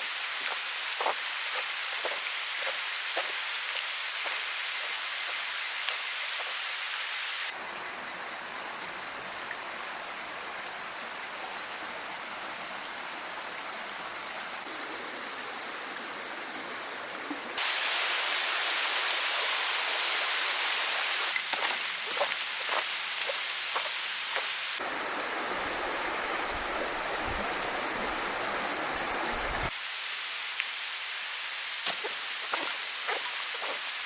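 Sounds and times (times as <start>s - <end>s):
waterfall rushing: 17.5s - 21.4s, 24.8s - 29.7s.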